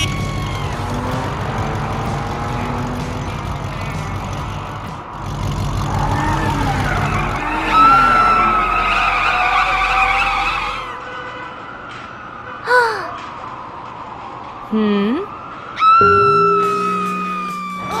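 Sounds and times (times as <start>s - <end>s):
drawn-out high squeal: 0.0s - 11.0s, 15.8s - 18.0s
heavy vehicle engine rumbling: 0.0s - 13.5s.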